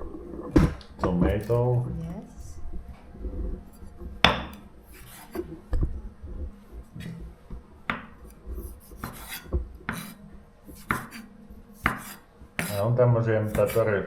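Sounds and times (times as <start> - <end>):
wooden pestle pounding in mortar: 13.5 - 13.8.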